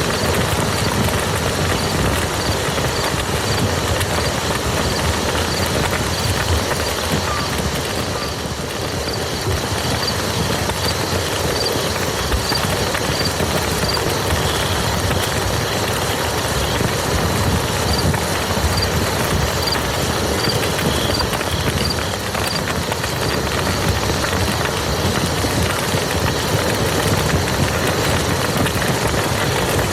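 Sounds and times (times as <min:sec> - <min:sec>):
rain falling on mud: 0:00.0 - 0:29.9.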